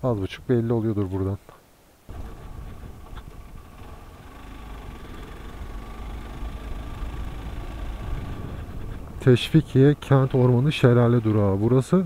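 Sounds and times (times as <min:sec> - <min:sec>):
motorcycle engine running: 0:02.1 - 0:11.2.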